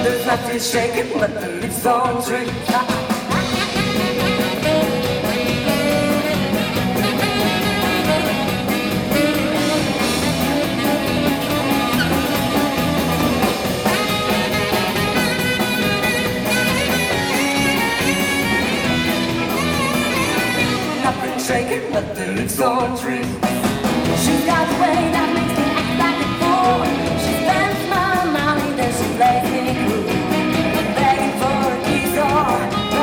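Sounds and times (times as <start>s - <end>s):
electric guitar: 0.0s - 33.0s
rock and roll band playing: 0.0s - 33.0s.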